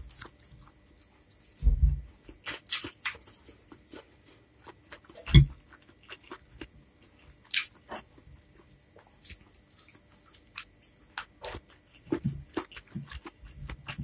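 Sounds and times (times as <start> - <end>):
low thump: 1.6 - 2.1
wet chewing and lip-smacking: 2.3 - 14.0.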